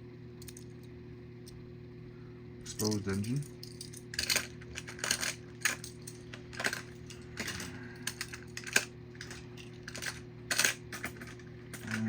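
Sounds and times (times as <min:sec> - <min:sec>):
steady low hum: 0:00.0 - 0:12.0
toy cars clicking and clattering: 0:02.8 - 0:12.0.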